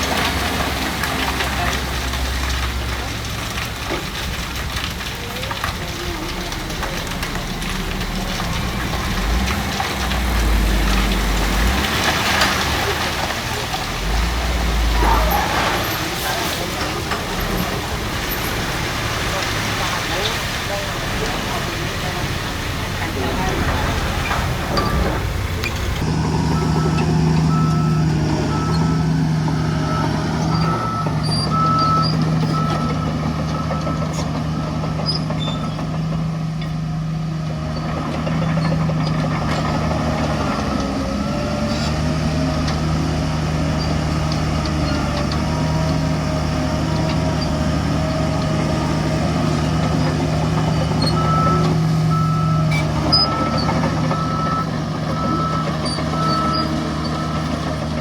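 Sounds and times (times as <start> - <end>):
heavy diesel machinery running: 0.0 - 58.0
reversing alarm beeping: 26.2 - 34.1, 50.8 - 57.5.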